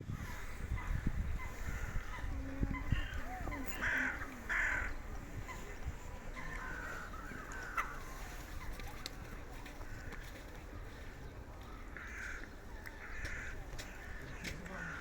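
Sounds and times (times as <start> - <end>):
other birds calling: 0.1 - 15.0
crows cawing: 0.7 - 5.7, 6.3 - 8.7, 9.8 - 15.0.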